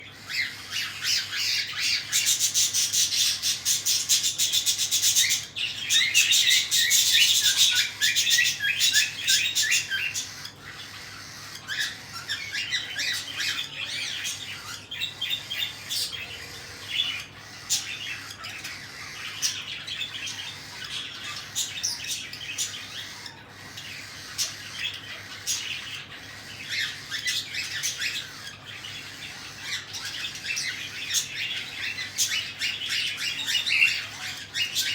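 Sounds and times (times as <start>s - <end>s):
chicks giving raspy begging calls: 0.0s - 34.9s.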